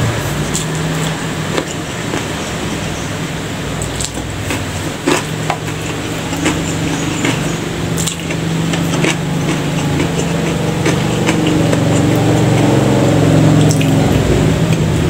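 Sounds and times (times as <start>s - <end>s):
low engine hum: 0.0s - 15.0s
wet chewing and smacking: 0.4s - 14.9s.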